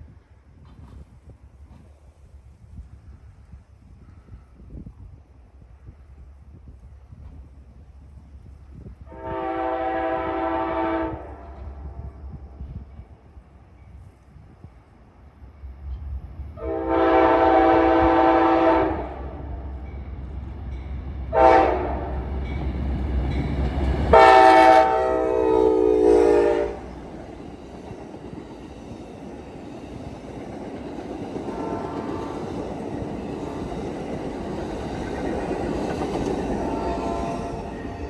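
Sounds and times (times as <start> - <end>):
train rolling on rails: 0.0 - 38.0
train horn blasts: 9.0 - 12.5, 16.6 - 19.8, 21.3 - 22.6, 24.0 - 27.0, 31.4 - 32.7, 36.5 - 38.0.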